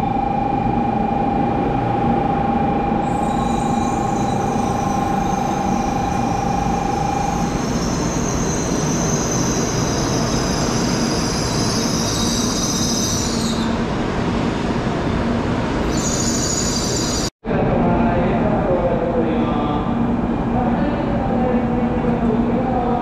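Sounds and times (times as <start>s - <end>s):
high-pitched wheel and brake whine: 0.0s - 13.8s, 15.8s - 17.3s.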